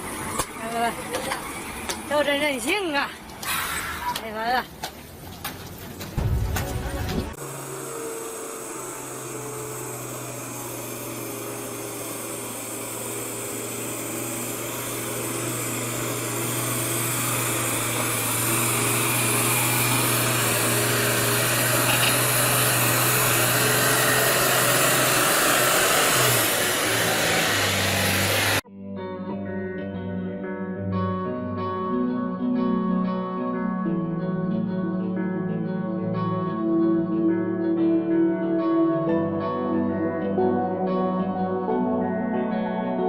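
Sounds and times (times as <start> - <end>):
machine humming and hissing: 6.2 - 28.6.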